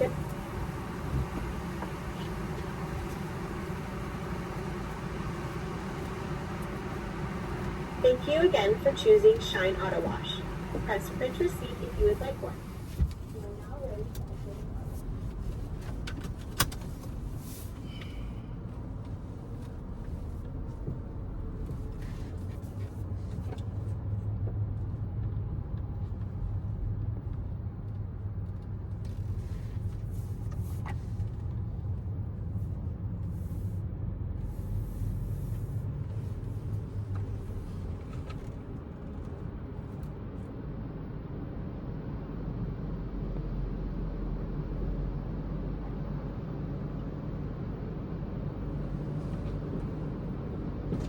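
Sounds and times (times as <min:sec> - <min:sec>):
car engine rumbling: 0:00.0 - 0:51.0.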